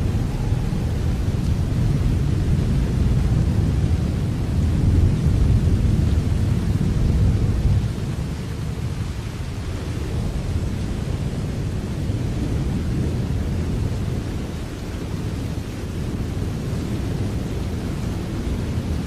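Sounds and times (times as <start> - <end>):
deep low rumble: 0.0 - 8.1
steady rain: 0.0 - 19.0.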